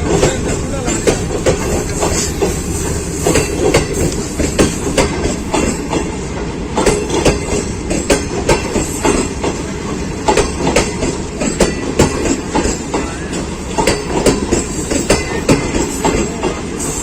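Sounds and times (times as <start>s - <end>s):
train coaches rumbling past: 0.0s - 17.0s.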